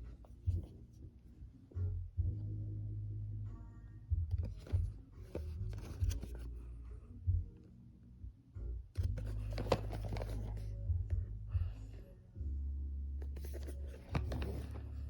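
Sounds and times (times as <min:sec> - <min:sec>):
low steady hum: 0:00.0 - 0:15.0
cardboard packaging being opened: 0:09.2 - 0:10.6, 0:13.3 - 0:14.9.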